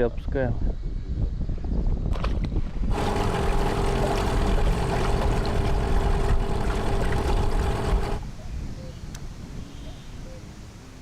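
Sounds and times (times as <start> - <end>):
outboard motor running: 2.9 - 8.2.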